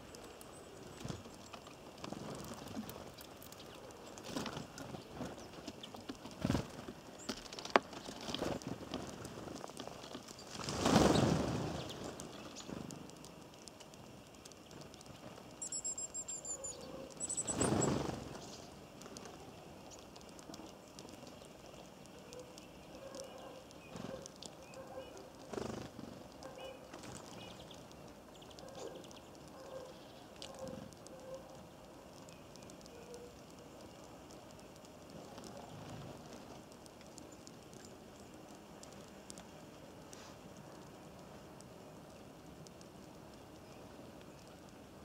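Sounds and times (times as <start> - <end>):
high rapid bird chirping: 14.6 - 18.8.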